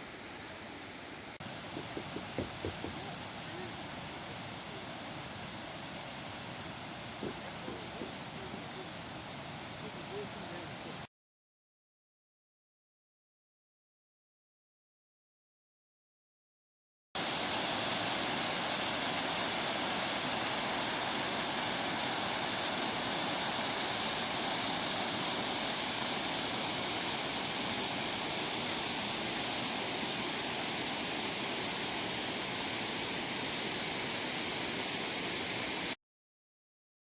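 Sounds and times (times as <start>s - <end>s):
waterfall roaring: 6.7s - 10.9s.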